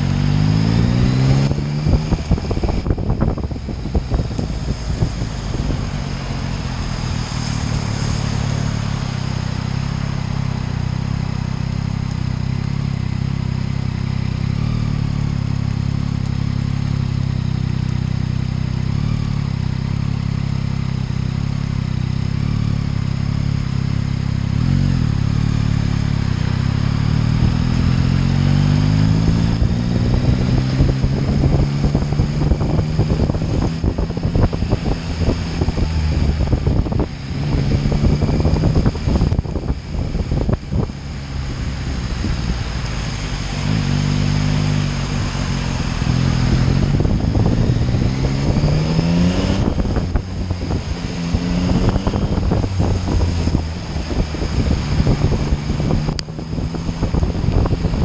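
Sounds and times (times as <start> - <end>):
motorcycle engine running: 0.0 - 58.0
wind buffeting microphone: 0.9 - 8.6, 29.1 - 58.0.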